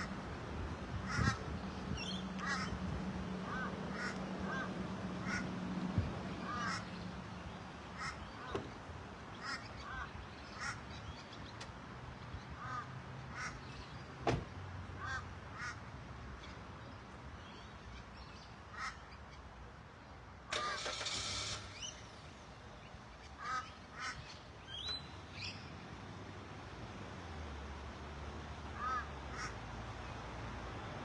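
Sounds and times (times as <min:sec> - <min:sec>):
ducks quacking: 0:01.1 - 0:01.5, 0:02.4 - 0:02.8, 0:03.4 - 0:05.5, 0:06.4 - 0:06.9, 0:23.4 - 0:24.3.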